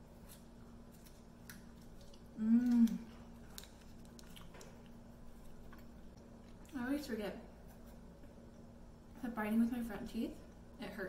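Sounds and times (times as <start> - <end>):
chewing chewy candy: 0.3 - 6.8
person humming mmm: 2.3 - 3.3.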